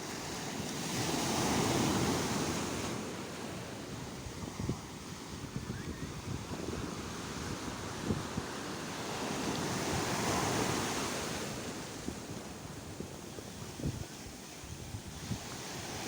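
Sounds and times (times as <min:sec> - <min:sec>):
sea waves breaking on shore: 0:00.0 - 0:16.0
wind buffeting microphone: 0:03.9 - 0:16.0.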